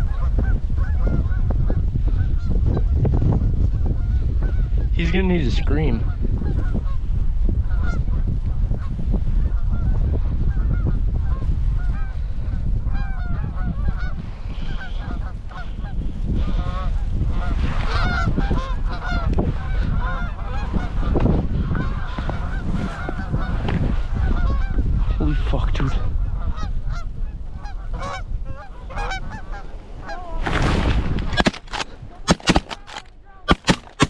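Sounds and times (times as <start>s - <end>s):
wind buffeting microphone: 0.0s - 34.0s
geese honking: 12.9s - 23.6s, 24.2s - 25.2s, 25.8s - 30.4s.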